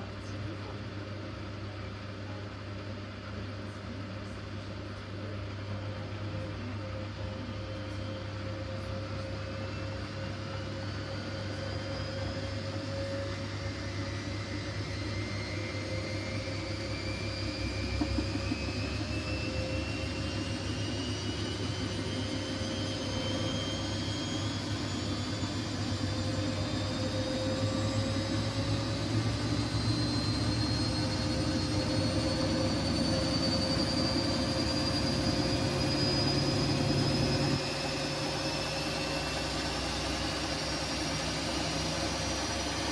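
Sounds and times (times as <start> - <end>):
washing machine drum whine: 9.5 - 42.9.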